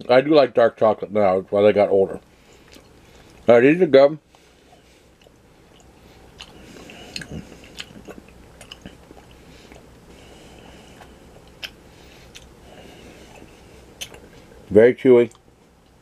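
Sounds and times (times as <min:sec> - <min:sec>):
person chewing: 0:02.5 - 0:03.5, 0:04.3 - 0:14.6
soft mouth clicks: 0:05.2 - 0:09.9, 0:11.0 - 0:12.5.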